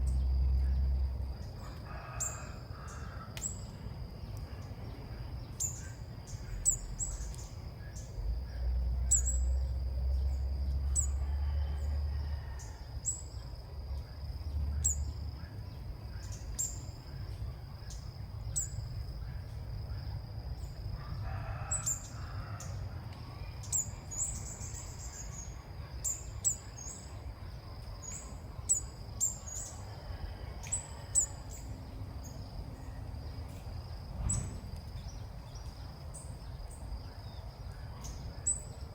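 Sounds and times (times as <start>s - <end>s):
bird chirping: 5.5s - 11.2s.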